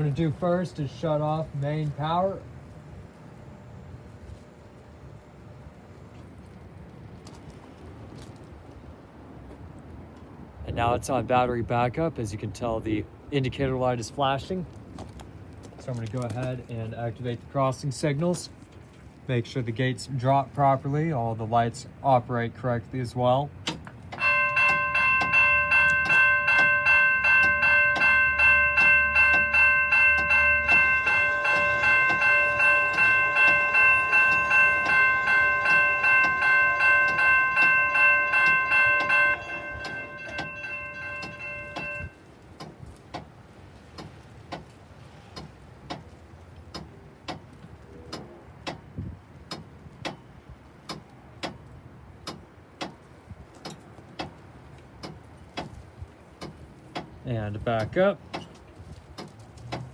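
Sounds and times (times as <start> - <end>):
railroad crossing bells ringing: 24.2 - 42.2.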